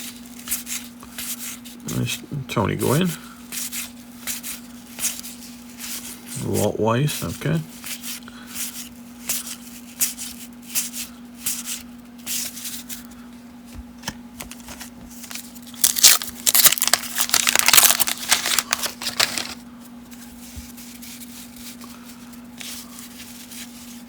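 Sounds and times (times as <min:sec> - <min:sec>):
faint steady hum: 0:00.0 - 0:24.0
card and paper rustling: 0:13.7 - 0:19.6.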